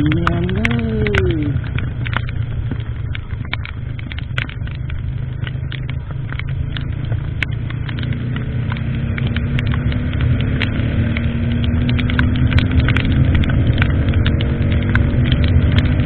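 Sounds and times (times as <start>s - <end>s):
sharp clicks: 0.0s - 8.1s
motorcycle engine rumble: 0.0s - 16.0s.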